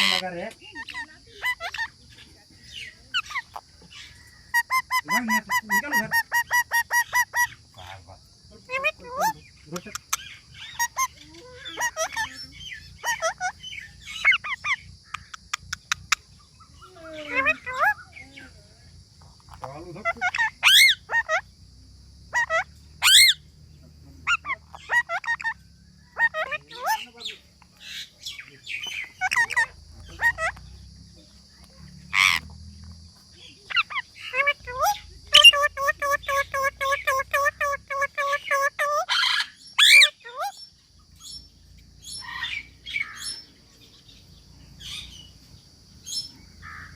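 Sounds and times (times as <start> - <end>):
parrot screeching: 0.0 - 1.9, 10.6 - 12.4, 13.0 - 15.3, 19.4 - 21.4, 22.3 - 23.4, 24.2 - 27.1, 28.8 - 30.6, 32.1 - 32.5, 33.7 - 40.6
parrot squawking: 0.0 - 2.0, 4.2 - 8.0, 8.6 - 18.2, 19.3 - 21.5, 22.3 - 23.4, 24.2 - 30.7, 31.6 - 32.5, 33.7 - 40.6.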